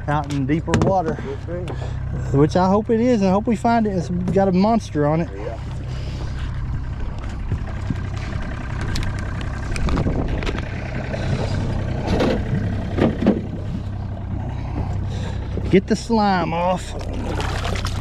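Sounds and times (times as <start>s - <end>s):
boat motor droning: 0.0s - 18.0s.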